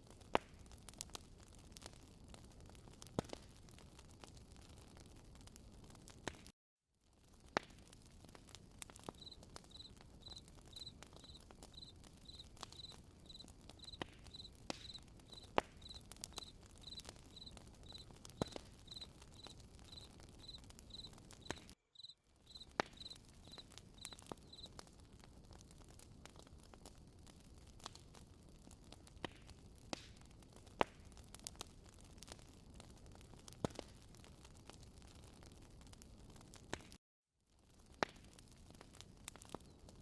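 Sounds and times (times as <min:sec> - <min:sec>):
campfire crackling and popping: 0:00.0 - 0:06.5, 0:07.1 - 0:37.0, 0:37.6 - 0:40.0
cricket chirping: 0:09.2 - 0:18.0, 0:18.8 - 0:21.1, 0:22.0 - 0:23.6.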